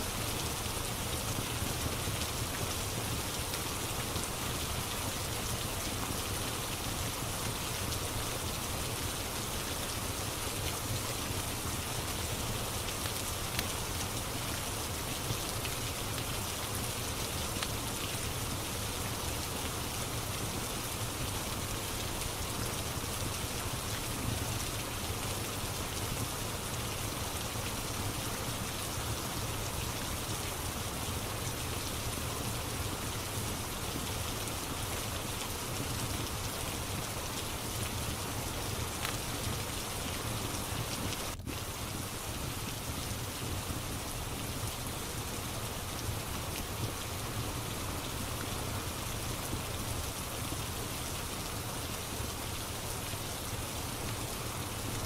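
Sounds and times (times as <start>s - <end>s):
steady rain: 0.0s - 55.0s
wood fire crackles: 36.4s - 39.9s.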